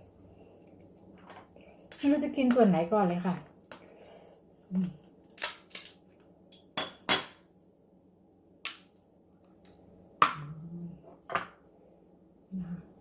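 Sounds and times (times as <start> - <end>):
person humming: 4.7 - 5.0, 10.2 - 11.2, 12.5 - 13.0
crab shell cracking: 5.0 - 6.1.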